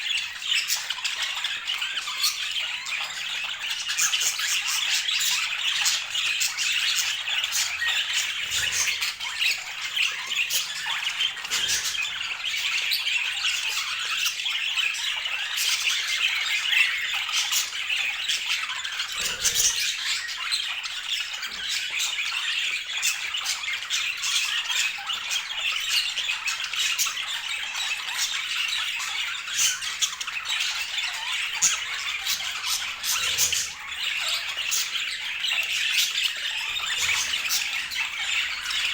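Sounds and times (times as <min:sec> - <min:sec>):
sharp squawks: 0:00.0 - 0:14.7, 0:17.0 - 0:22.5, 0:28.2 - 0:38.9
budgerigars chattering: 0:00.0 - 0:38.9.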